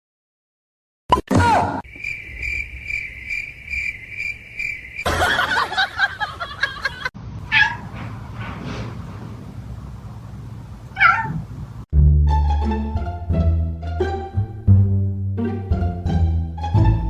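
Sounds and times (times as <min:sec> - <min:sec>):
cat meowing faintly: 0:07.5 - 0:07.8, 0:11.0 - 0:11.4.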